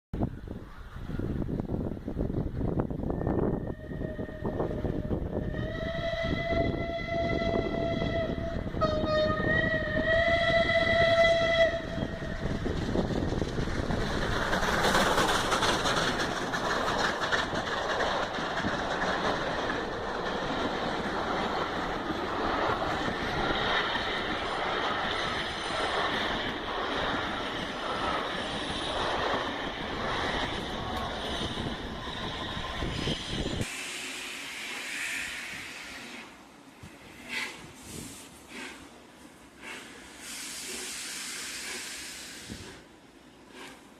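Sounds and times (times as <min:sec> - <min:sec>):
train rushing at speed: 0:00.2 - 0:43.9
steam locomotive whistle: 0:03.1 - 0:12.6, 0:32.5 - 0:36.3.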